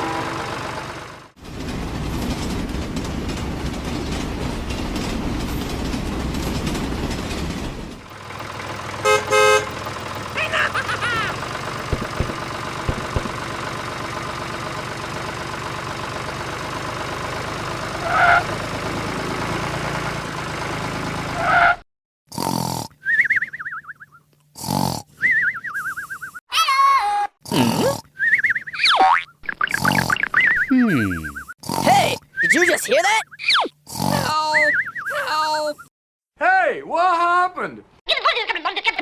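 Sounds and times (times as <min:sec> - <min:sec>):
miniature vehicle engine running: 0:05.8 - 0:21.4.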